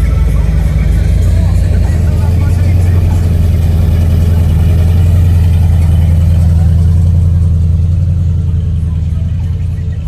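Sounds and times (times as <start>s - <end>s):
car engine rumbling: 0.0s - 10.0s.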